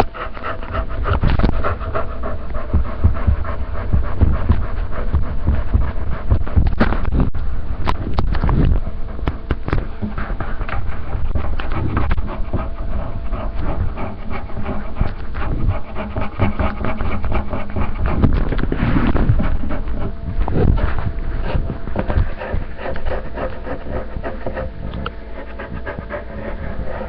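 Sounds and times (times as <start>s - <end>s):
scratching under a table: 7.9s - 27.0s.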